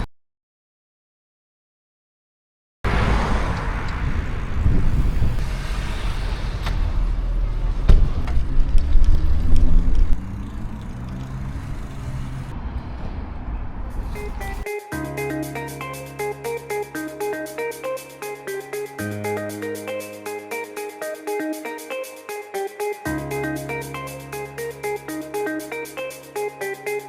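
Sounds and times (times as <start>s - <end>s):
vehicle engine rumbling: 2.9s - 14.6s
road noise: 2.9s - 20.9s, 23.1s - 27.0s.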